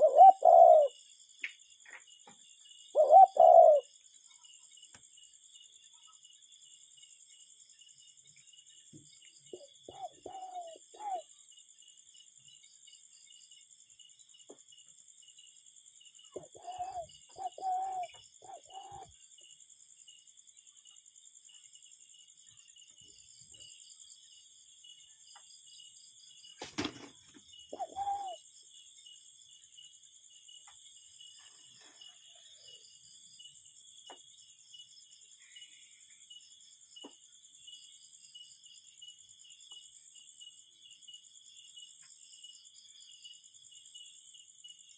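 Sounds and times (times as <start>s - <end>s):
cuckoo calling: 0.0s - 1.0s, 2.9s - 3.9s, 9.6s - 11.3s, 16.4s - 19.1s, 27.7s - 28.4s.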